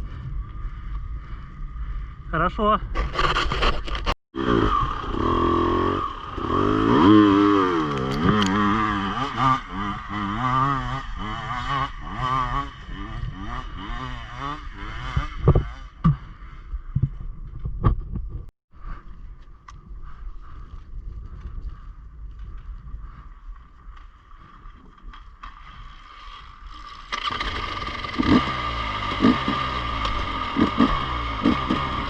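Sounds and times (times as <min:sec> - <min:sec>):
motorcycle engine revving: 0:03.0 - 0:17.0, 0:27.1 - 0:32.0.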